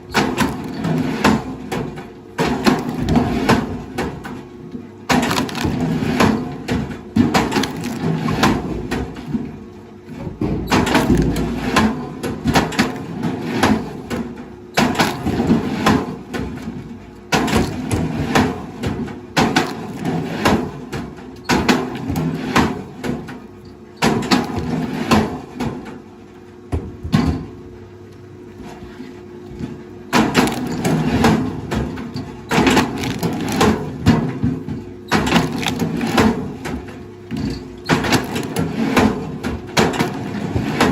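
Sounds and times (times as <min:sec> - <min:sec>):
wood cracking and snapping: 0:00.1 - 0:03.7, 0:05.1 - 0:08.6, 0:10.7 - 0:11.8, 0:30.2 - 0:34.1, 0:35.1 - 0:40.9.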